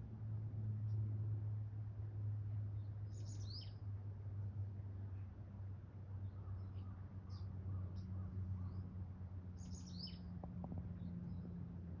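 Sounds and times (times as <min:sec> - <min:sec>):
small birds chirping: 0:03.1 - 0:03.8, 0:09.6 - 0:10.3.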